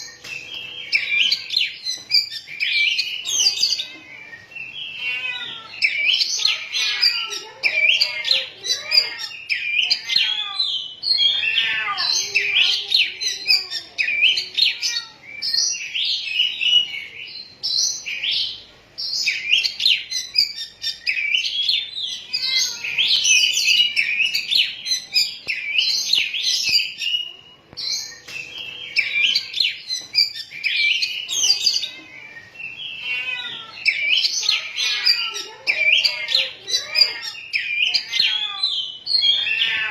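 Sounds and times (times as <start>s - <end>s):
bird singing whistles and chirps: 12.1s - 39.6s.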